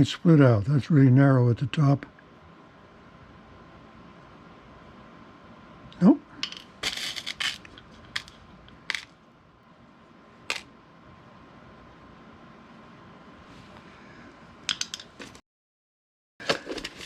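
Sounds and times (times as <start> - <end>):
rattling scrape of small pieces: 6.4 - 9.1, 16.4 - 17.0
small hard pieces clicking: 6.4 - 9.1.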